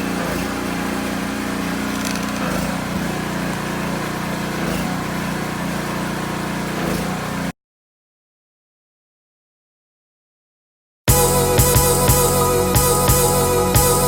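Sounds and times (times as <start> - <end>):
pressure washer engine running: 0.0 - 7.5, 11.1 - 14.0
water spray hissing: 0.0 - 7.5.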